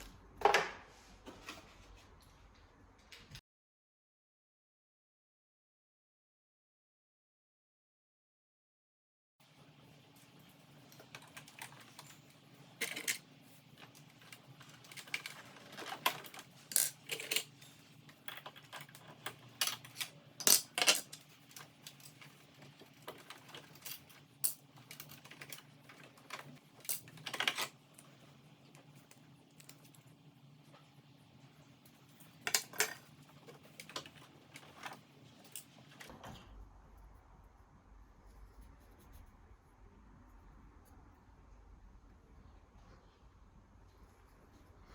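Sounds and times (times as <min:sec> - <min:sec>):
faint steady hum: 0:09.4 - 0:44.9.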